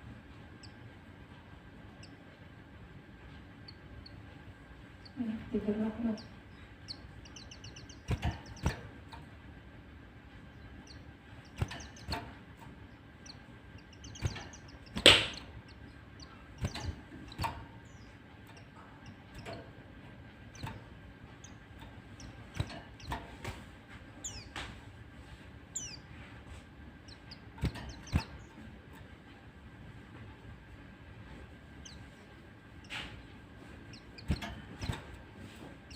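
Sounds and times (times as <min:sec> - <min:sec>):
bird chirps and clicks: 0:00.6 - 0:01.0, 0:01.9 - 0:02.4, 0:03.2 - 0:05.2, 0:06.1 - 0:09.4, 0:10.3 - 0:23.6, 0:24.2 - 0:24.8, 0:25.7 - 0:26.1, 0:27.0 - 0:29.2, 0:33.8 - 0:35.9
bird chittering: 0:03.5 - 0:09.0, 0:10.4 - 0:23.4, 0:24.2 - 0:24.6, 0:25.7 - 0:26.1, 0:27.0 - 0:28.8, 0:33.8 - 0:35.1.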